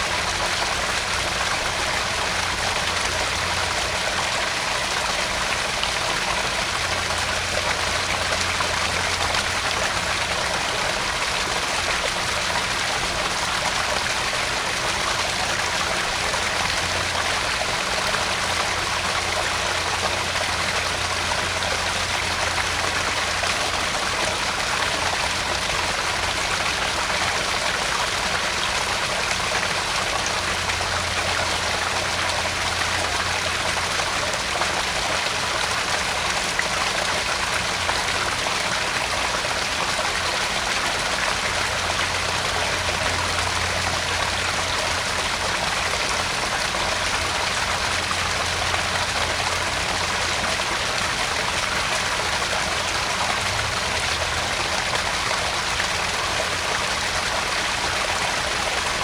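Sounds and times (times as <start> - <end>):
water splashing into pond: 0.0 - 59.0.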